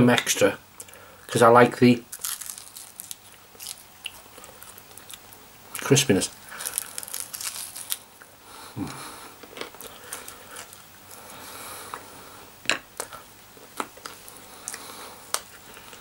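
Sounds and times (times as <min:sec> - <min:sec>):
chewing crispy chicken: 0:02.1 - 0:05.9, 0:06.5 - 0:08.1.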